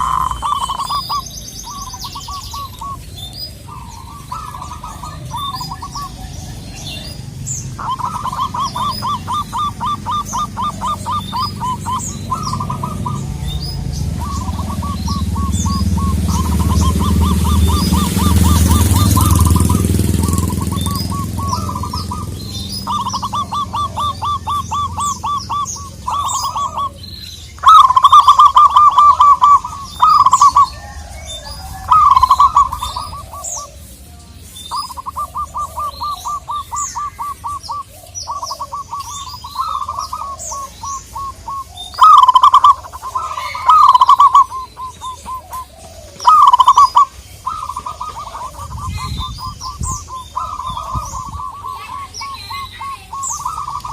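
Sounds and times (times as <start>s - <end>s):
small birds chirping: 0.0s - 53.9s
dove cooing in staccato runs: 3.6s - 27.0s, 39.6s - 48.9s.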